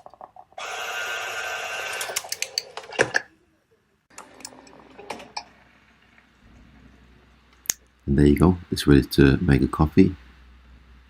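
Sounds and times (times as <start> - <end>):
coffee machine motor running: 0.6 - 2.4.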